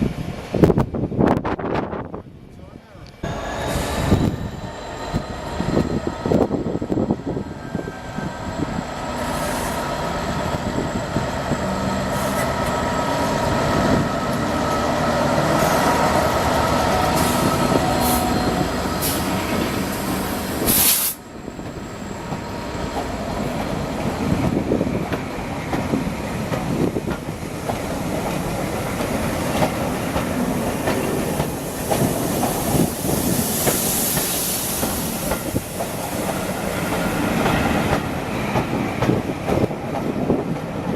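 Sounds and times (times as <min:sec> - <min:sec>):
train wheels squealing: 0:03.3 - 0:06.4, 0:17.1 - 0:19.3.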